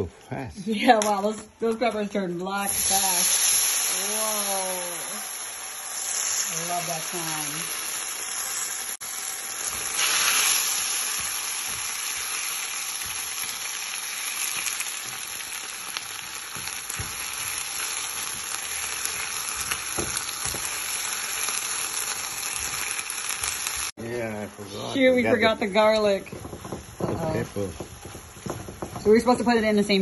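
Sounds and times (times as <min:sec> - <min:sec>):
peppers sizzling in hot oil: 0:00.8 - 0:30.0
soft knocks: 0:26.0 - 0:29.7.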